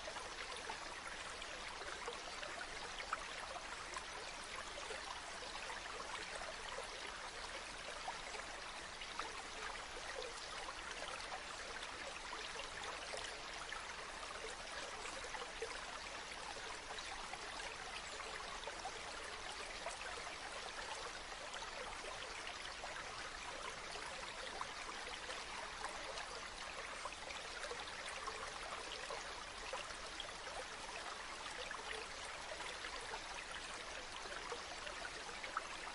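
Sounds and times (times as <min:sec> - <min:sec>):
river water flowing: 0:00.0 - 0:35.9.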